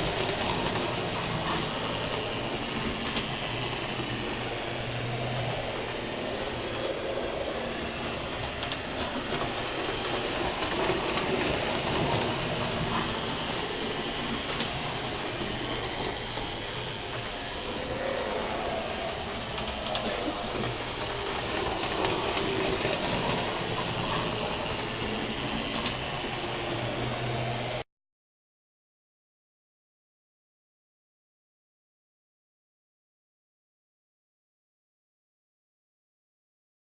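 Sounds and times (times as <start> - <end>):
model train running on track: 0.0 - 27.8.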